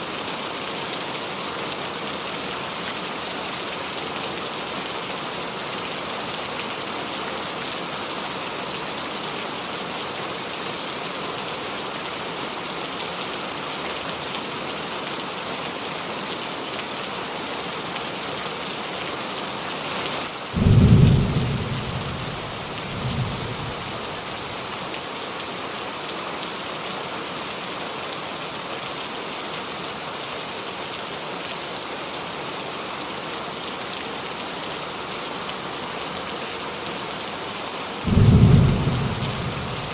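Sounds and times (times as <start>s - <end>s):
rain falling on a roof: 0.0s - 39.9s
thunder rumbling: 20.6s - 24.4s, 38.1s - 39.9s.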